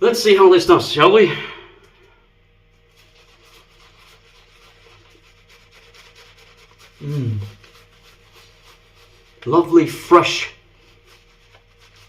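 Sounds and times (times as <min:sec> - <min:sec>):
shaving brush scratching on face: 0:02.7 - 0:12.0
man humming: 0:07.0 - 0:07.6.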